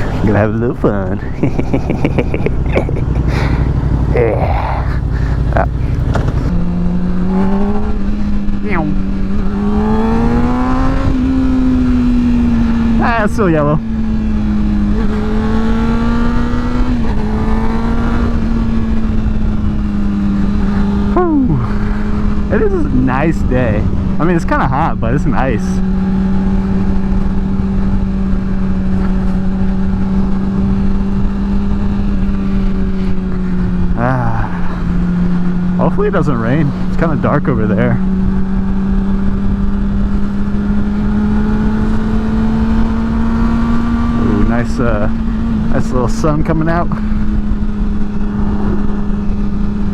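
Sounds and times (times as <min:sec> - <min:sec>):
motorcycle engine accelerating: 0:00.0 - 0:49.9
wind rumble on microphone: 0:46.8 - 0:49.9.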